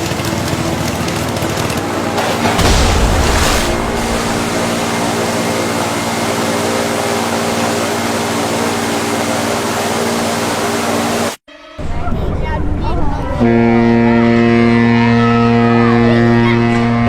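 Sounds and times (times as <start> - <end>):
steady mechanical hum: 0.0 - 17.0
continuous rushing noise: 1.2 - 11.4.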